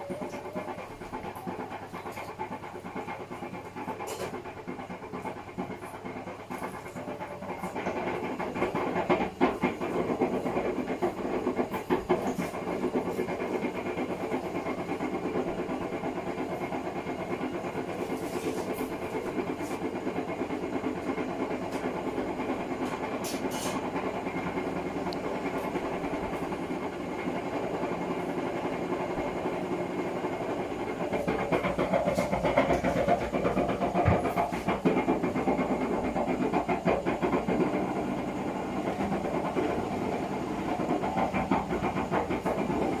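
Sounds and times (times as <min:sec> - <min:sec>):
washing machine churning: 0:00.0 - 0:43.0
knocks in washing machine drum: 0:31.1 - 0:37.8.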